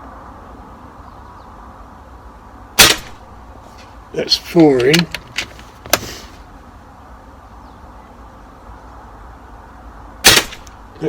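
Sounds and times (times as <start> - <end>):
rifle shot: 2.8 - 3.2, 10.2 - 10.8.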